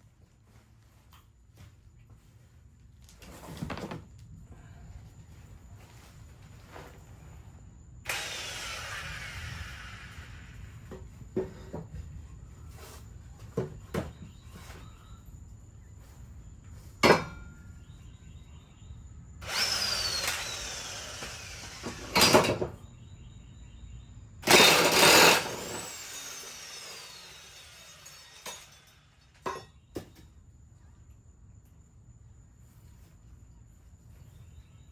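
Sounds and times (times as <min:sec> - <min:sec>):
power tool whine: 0:08.1 - 0:11.2, 0:19.4 - 0:22.8, 0:24.4 - 0:29.6.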